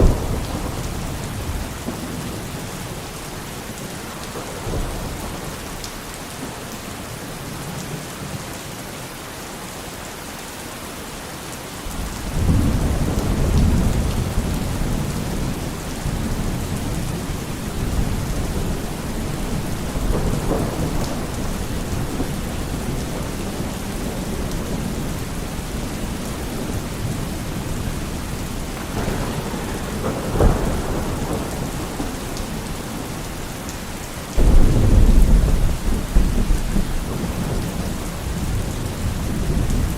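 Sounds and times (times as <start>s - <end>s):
thunder clap: 0.0s - 3.0s, 11.9s - 33.4s, 34.4s - 39.9s
thunder rumbling: 0.0s - 6.6s, 11.9s - 39.9s
steady rain: 0.0s - 39.9s.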